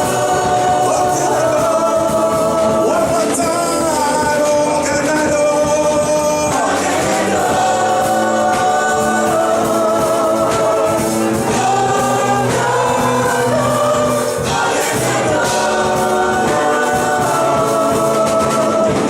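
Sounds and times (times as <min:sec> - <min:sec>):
choir singing: 0:00.0 - 0:04.3, 0:06.3 - 0:19.0
band with drums: 0:00.0 - 0:19.0.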